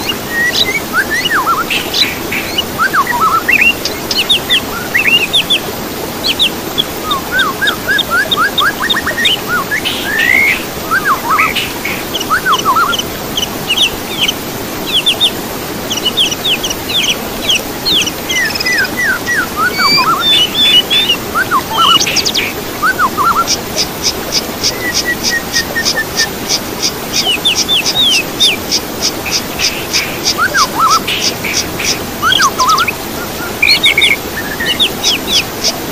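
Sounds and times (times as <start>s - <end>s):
songbirds singing: 0.0s - 35.9s
background hiss: 25.8s - 35.9s.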